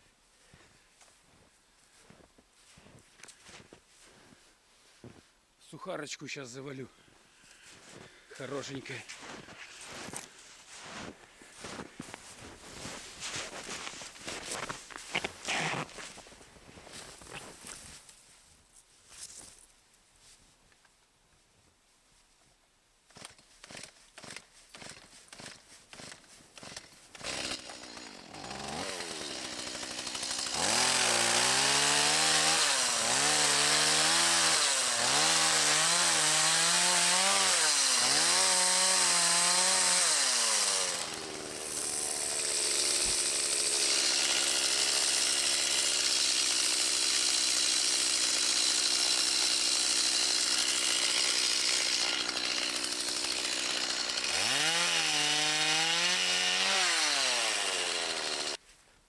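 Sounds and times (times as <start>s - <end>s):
chainsaw cutting wood: 7.6s - 17.9s, 23.1s - 58.6s.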